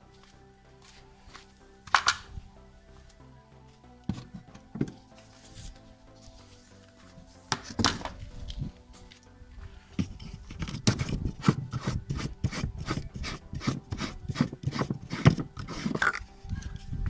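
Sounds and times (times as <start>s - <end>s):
rubbing or scraping strokes: 4.1s - 17.0s.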